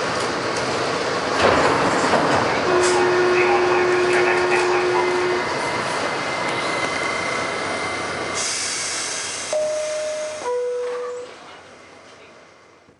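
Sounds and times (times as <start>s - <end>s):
subway car whine: 0.0s - 12.9s
two-note door chime: 9.6s - 11.3s.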